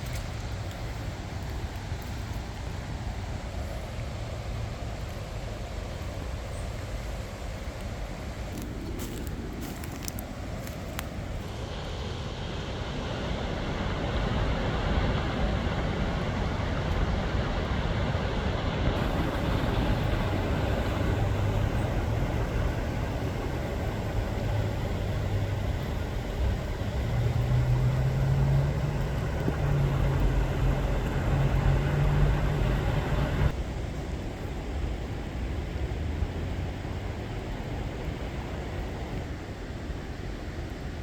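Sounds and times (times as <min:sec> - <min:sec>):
steady rushing noise: 0:00.0 - 0:39.2
vehicle engine running: 0:18.8 - 0:33.6.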